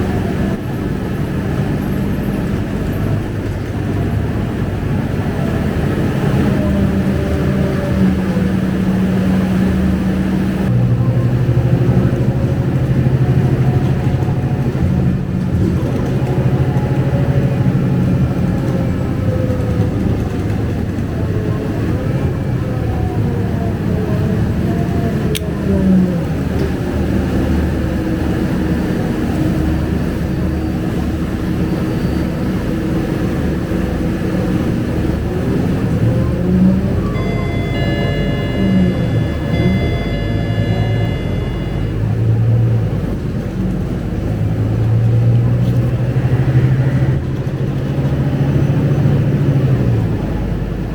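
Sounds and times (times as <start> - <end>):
bus diesel engine running: 0.0 - 50.9.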